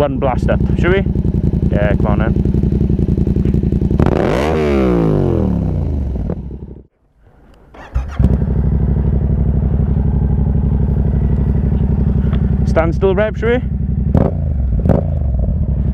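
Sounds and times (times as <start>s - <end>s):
motorcycle engine revving: 0.0s - 6.9s, 7.8s - 15.9s.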